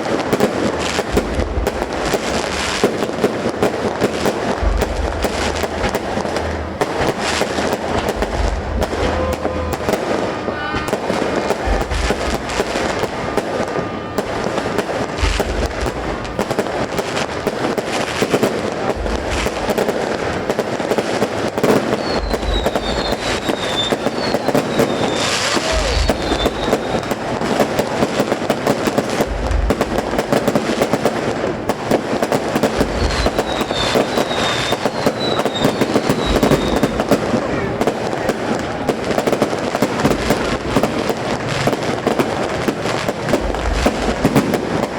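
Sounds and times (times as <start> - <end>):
deep firework booms: 0.0 - 44.9
fireworks crackling and popping: 0.0 - 44.9.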